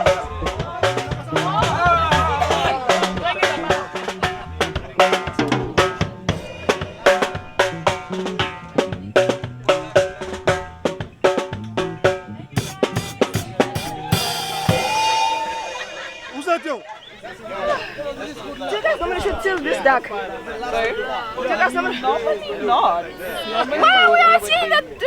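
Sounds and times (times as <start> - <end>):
drum and snare strikes: 0.0 - 16.7
band music: 0.0 - 25.0
cymbal crash: 12.8 - 16.9.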